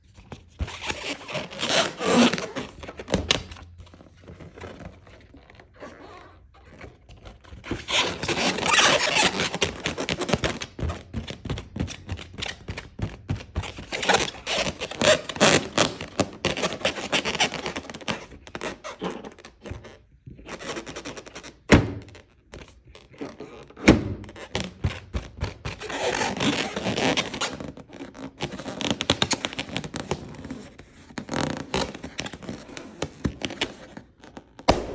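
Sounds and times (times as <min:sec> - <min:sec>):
balloons rubbed and squeezed: 0:00.0 - 0:34.9
balloon popping: 0:34.7 - 0:34.9.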